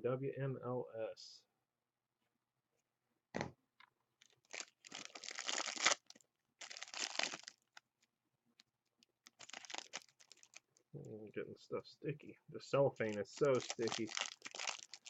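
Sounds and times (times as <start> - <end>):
cellophane tearing and crinkling: 4.2 - 7.8, 9.2 - 10.7, 13.0 - 15.0.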